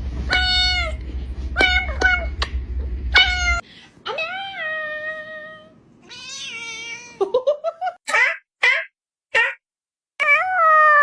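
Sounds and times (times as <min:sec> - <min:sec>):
cat meowing: 0:03.1 - 0:07.2.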